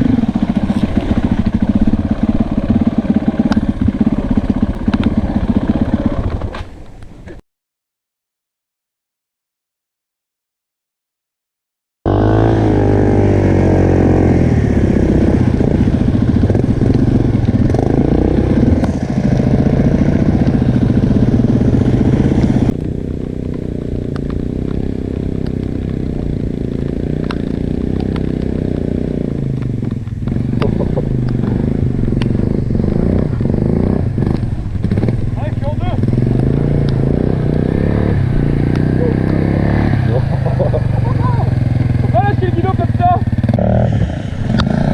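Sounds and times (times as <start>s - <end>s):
motorcycle engine revving: 0.0s - 7.4s, 12.1s - 44.9s.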